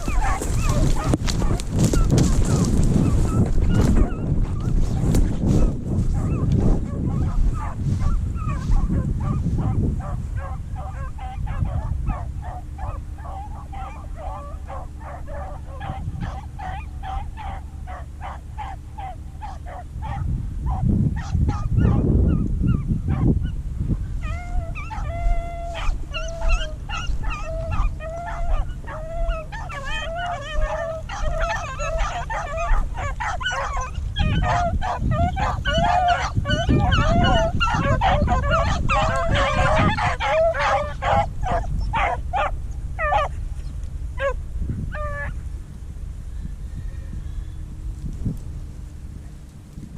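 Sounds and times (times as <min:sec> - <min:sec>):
hounds baying and yelping: 0:00.0 - 0:45.5
low rumble: 0:00.0 - 0:49.9.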